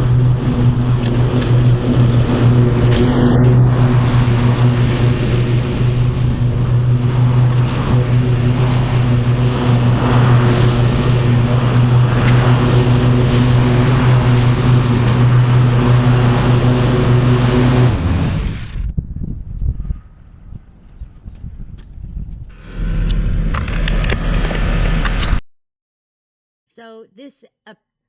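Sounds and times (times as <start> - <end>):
tractor diesel engine running: 0.0 - 18.9.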